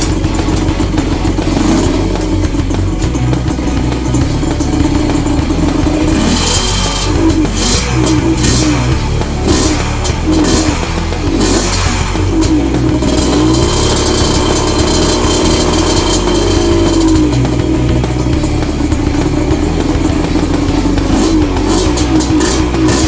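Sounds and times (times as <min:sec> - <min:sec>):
two-stroke engine revving: 0:00.0 - 0:23.0.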